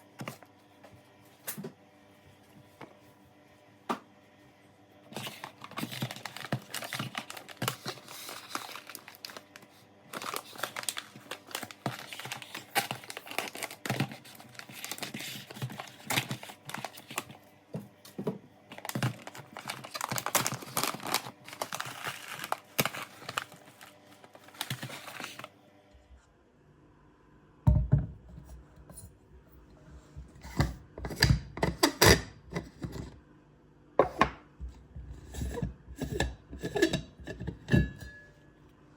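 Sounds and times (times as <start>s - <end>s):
paper or plastic rustling: 5.1s - 17.4s, 18.7s - 25.5s.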